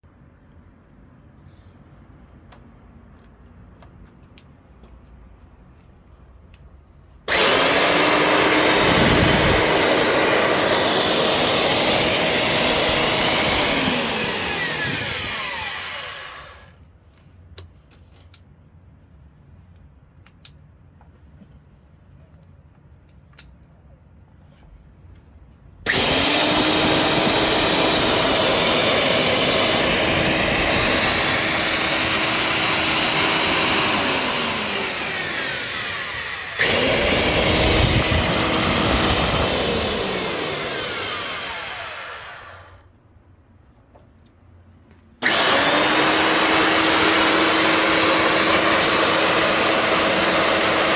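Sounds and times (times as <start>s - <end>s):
core drill motor running: 7.3s - 16.7s, 25.9s - 42.8s, 45.2s - 50.9s.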